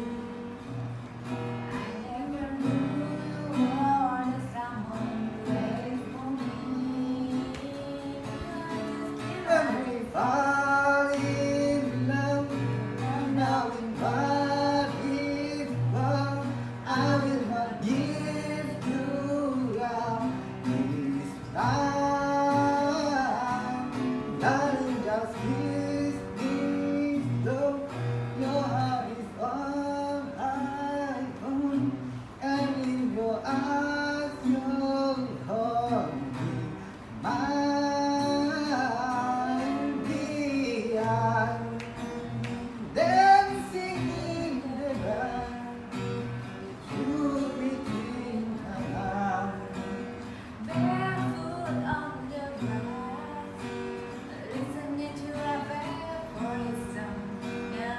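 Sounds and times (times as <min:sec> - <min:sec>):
strummed acoustic guitar: 0:00.0 - 0:57.9
person singing: 0:01.6 - 0:41.9.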